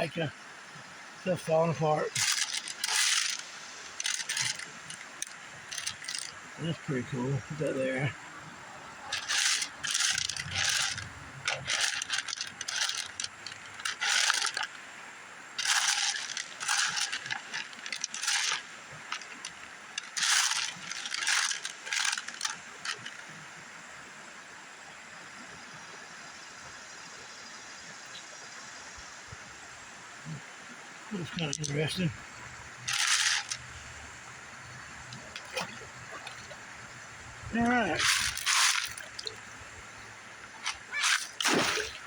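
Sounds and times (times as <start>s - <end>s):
river water flowing: 0.0s - 42.0s
rocks and gravel clattering: 1.3s - 8.0s, 9.1s - 14.8s, 15.6s - 23.2s, 31.2s - 32.1s, 32.8s - 34.1s, 35.0s - 42.0s.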